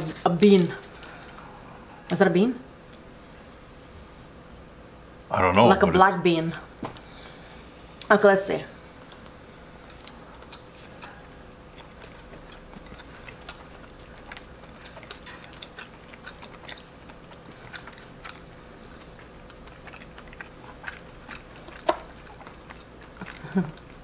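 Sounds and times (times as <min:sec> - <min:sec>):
chewing sticky food: 0:09.1 - 0:24.0.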